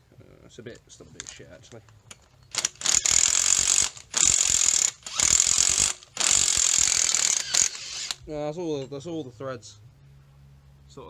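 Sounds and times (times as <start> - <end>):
bolt turning in threaded hole: 1.1 - 8.9.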